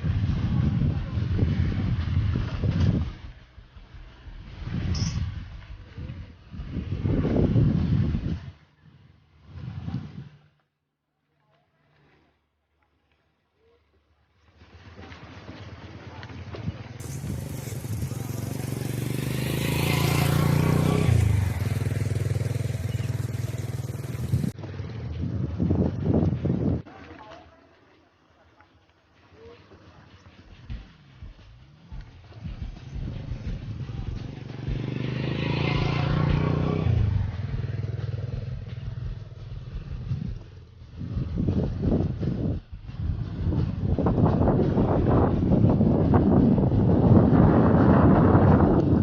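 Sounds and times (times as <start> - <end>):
motorcycle engine running: 17.0 - 26.8, 29.9 - 49.0.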